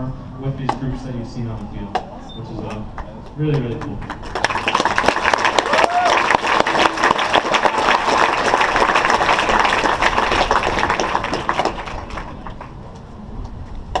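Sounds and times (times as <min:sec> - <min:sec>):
crowd applauding: 0:02.9 - 0:12.8.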